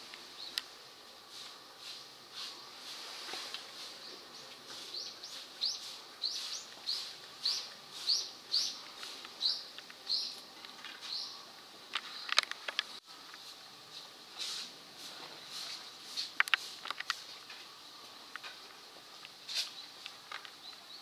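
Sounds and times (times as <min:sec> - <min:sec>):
bird chirping: 0:03.9 - 0:12.5, 0:19.6 - 0:21.0.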